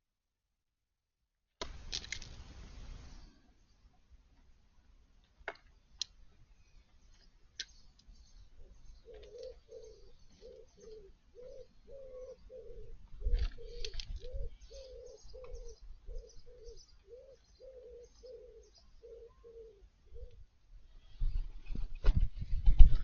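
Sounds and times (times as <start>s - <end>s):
pigeon cooing: 8.6s - 20.4s.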